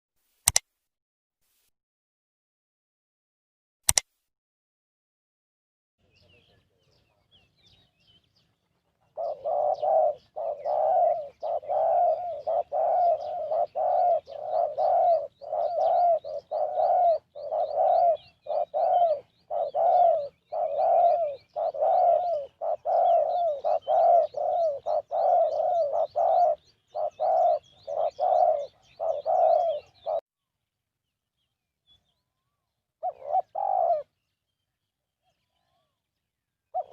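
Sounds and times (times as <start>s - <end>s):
doves cooing: 8.9s - 30.2s, 33.0s - 34.1s.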